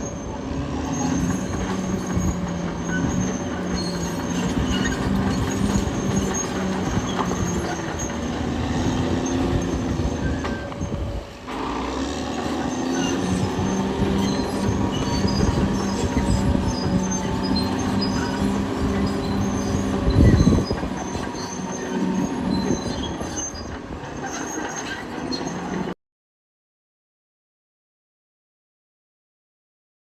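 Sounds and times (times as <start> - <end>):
bulldozer diesel engine: 0.0 - 26.0
steel tracks squeaking and clanking: 0.0 - 26.0.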